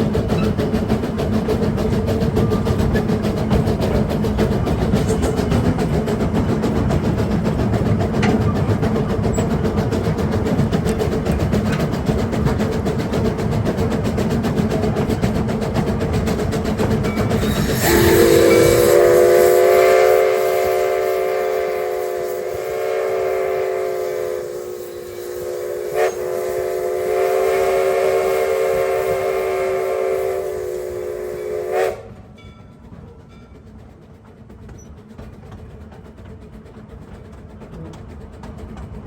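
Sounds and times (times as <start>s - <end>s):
steam locomotive whistle: 17.2s - 32.2s.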